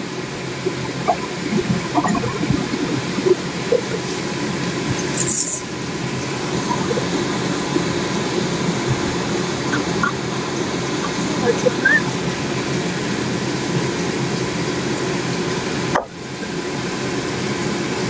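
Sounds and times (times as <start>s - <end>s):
mechanical rumbling: 0.0s - 14.0s.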